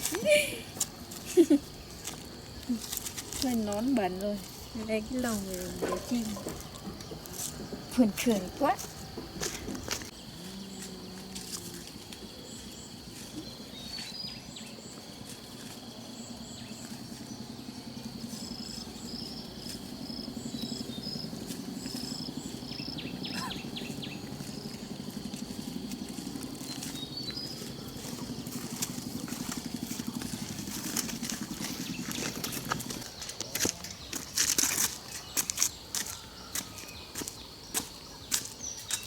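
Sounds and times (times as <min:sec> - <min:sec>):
steady low hum: 0:05.4 - 0:35.1
birds chirping: 0:16.0 - 0:39.0.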